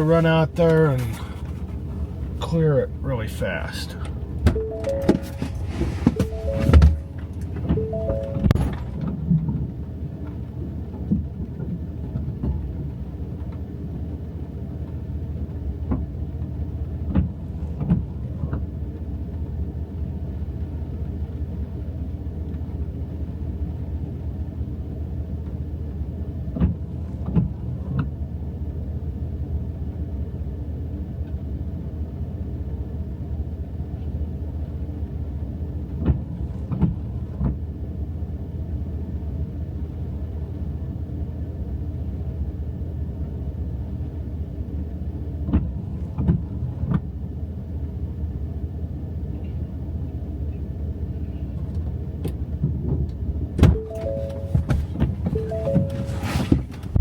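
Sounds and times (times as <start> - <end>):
vehicle engine droning: 53.2 - 57.0
clunks and knocks: 53.6 - 57.0.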